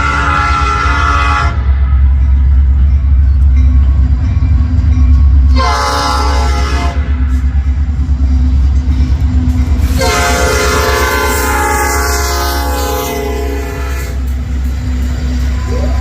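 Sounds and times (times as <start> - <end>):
train air horn blasts: 0.0 - 1.8, 5.5 - 7.4, 9.9 - 14.4
passing train rumble: 0.0 - 16.0.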